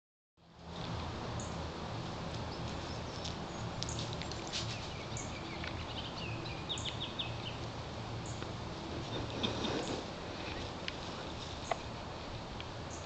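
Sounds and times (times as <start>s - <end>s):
small birds calling: 2.4s - 7.6s, 8.2s - 12.0s.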